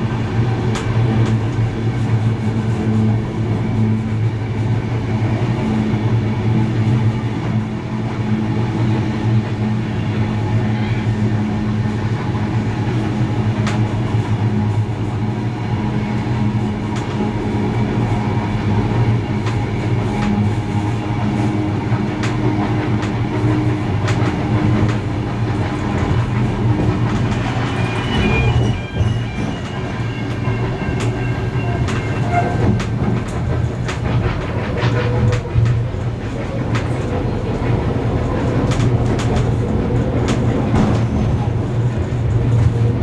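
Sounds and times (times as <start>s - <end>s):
train wheels rolling on rails: 0.0s - 43.0s
wheels clicking over rail joints: 15.9s - 43.0s.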